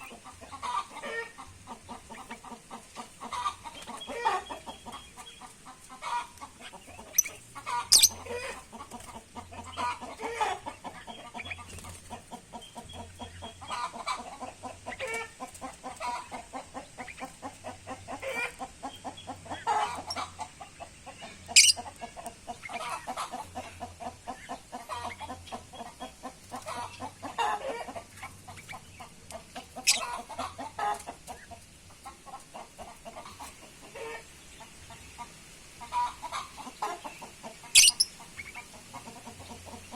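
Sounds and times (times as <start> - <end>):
birds calling: 0.0 - 39.9.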